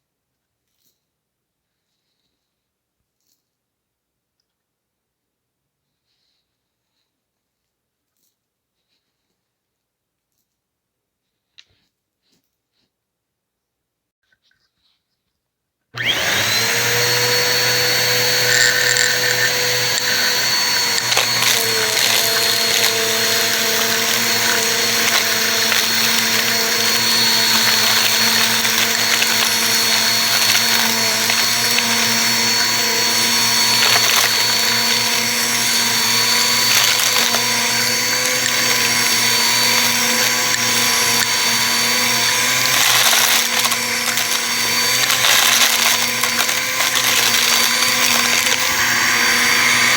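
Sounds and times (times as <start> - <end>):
vacuum cleaner motor whine: 16.0 - 49.9.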